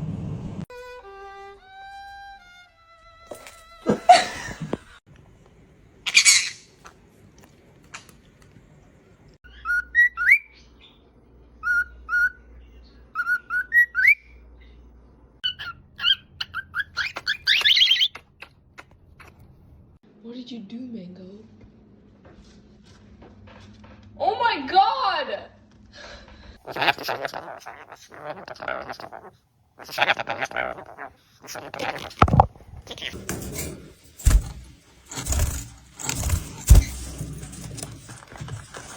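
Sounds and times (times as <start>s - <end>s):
parrots whistling: 6.1s - 6.7s, 15.4s - 18.2s
parrots squawking and screeching: 6.1s - 6.8s, 11.6s - 12.4s, 13.2s - 14.3s, 15.4s - 19.4s, 26.6s - 38.9s.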